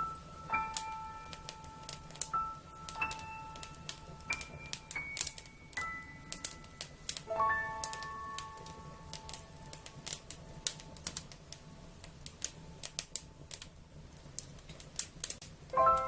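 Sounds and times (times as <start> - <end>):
soft ringing musical notes: 0.0 - 10.9, 15.7 - 16.0
wood fire crackling: 0.0 - 16.0.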